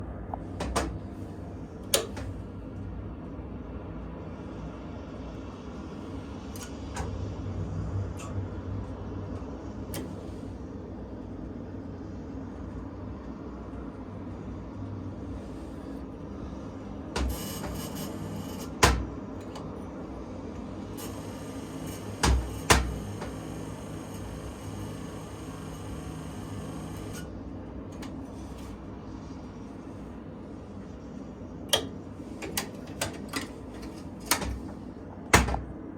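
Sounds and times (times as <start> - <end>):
clicks and knocks of tools: 0.3 - 1.0, 1.8 - 2.4, 31.7 - 35.6.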